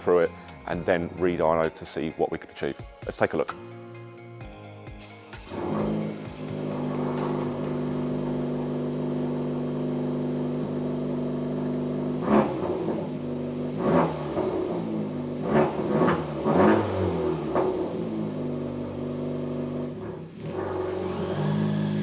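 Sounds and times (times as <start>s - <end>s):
car engine idling and revving: 5.1s - 22.0s.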